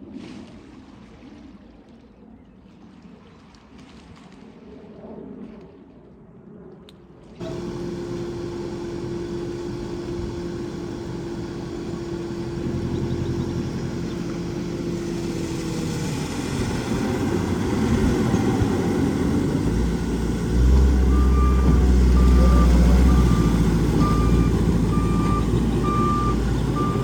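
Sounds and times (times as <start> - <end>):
vehicle engine whining: 7.4 - 27.0.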